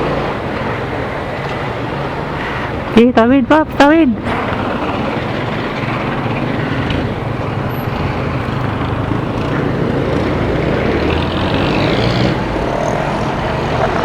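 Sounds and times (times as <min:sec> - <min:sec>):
road and traffic noise: 0:00.0 - 0:14.0
motorcycle engine running: 0:04.3 - 0:14.0.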